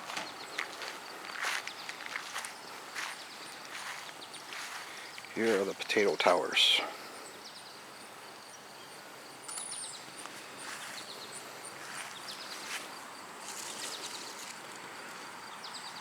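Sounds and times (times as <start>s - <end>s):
steady background noise: 0.0s - 16.0s
bird chirps: 8.5s - 12.7s.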